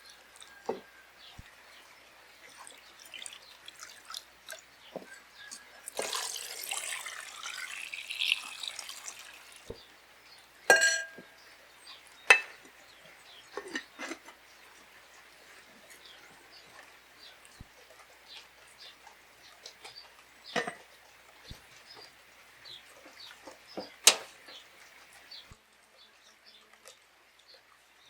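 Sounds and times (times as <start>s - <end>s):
running water: 0.0s - 12.4s
sharp ringing clinks of glass: 10.7s - 11.2s.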